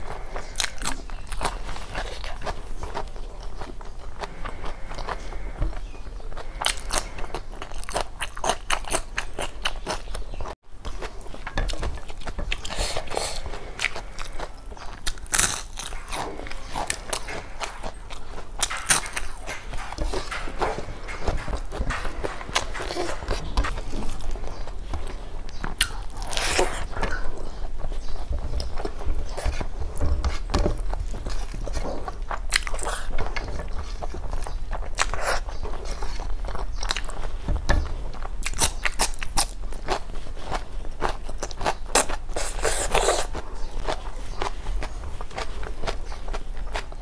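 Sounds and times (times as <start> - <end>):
close chewing with lip smacks: 0.0 - 47.0
fingers scraping food from plate: 10.8 - 47.0.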